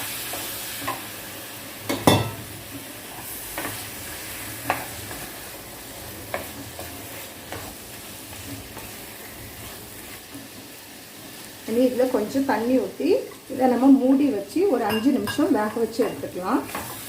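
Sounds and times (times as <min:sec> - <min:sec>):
chicken sizzling in a pan: 0:00.0 - 0:17.0
spoon scraping a pan: 0:06.3 - 0:10.7, 0:14.8 - 0:17.0.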